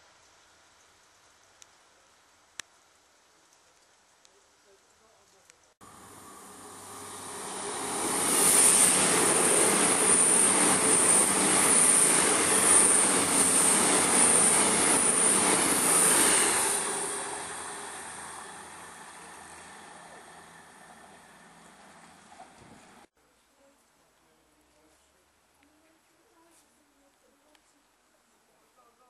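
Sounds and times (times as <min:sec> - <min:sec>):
train passing close by: 0:05.8 - 0:23.1.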